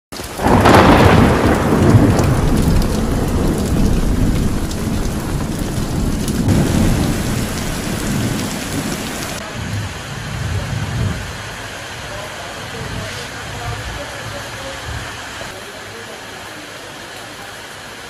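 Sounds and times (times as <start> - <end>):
heavy rain pouring: 0.1 - 18.0
loud thunderclap: 0.3 - 11.4
low rumble of thunder: 0.4 - 12.1.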